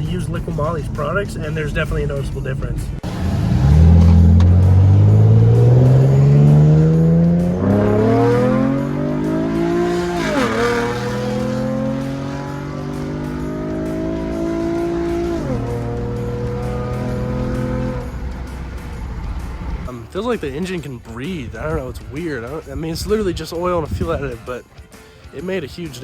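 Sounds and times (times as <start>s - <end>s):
car engine accelerating through gears: 3.0s - 19.9s.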